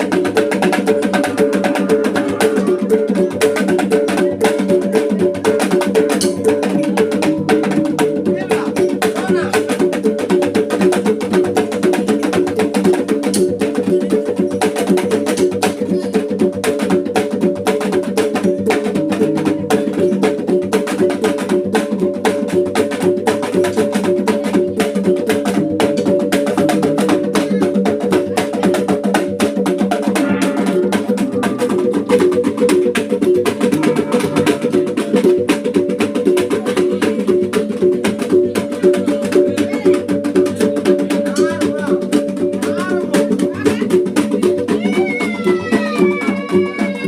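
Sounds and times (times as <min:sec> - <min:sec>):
drum beating fast rhythm: 0:00.0 - 0:47.0
gongs ringing: 0:30.2 - 0:35.6.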